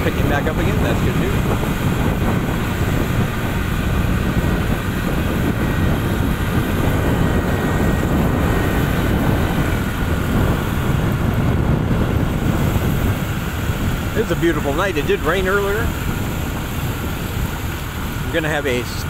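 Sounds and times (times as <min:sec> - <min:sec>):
motorbike running: 0:00.0 - 0:19.0
road noise: 0:00.0 - 0:19.0
wind buffeting microphone: 0:00.0 - 0:19.0.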